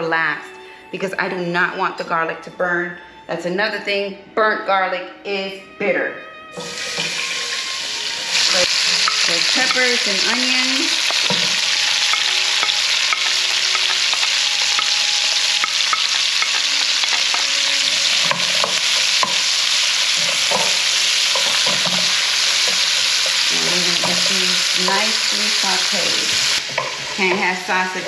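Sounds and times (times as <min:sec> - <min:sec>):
vegetables sizzling in a frying pan: 0:06.6 - 0:28.0
wooden spatula clicking and scraping: 0:08.4 - 0:25.1.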